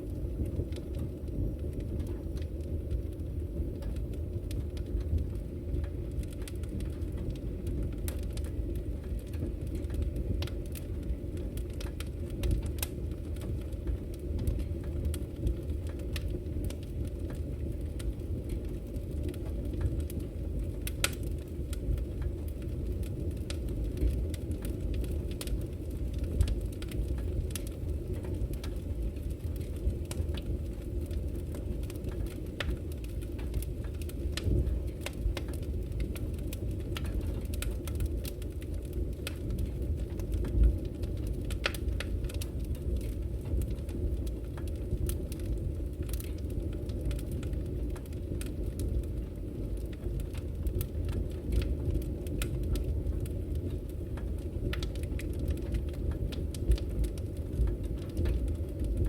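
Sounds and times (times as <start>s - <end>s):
firewood crackling and popping: 0.0s - 59.0s
low rumble of flames: 0.0s - 59.0s.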